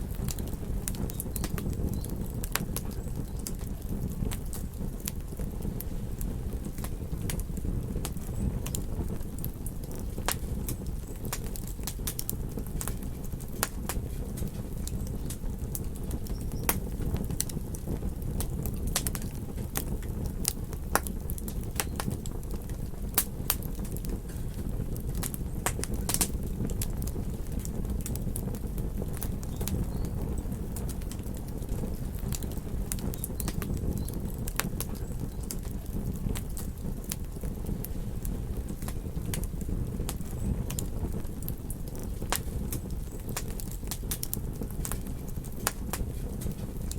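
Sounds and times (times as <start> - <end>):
campfire crackling and popping: 0.0 - 46.9.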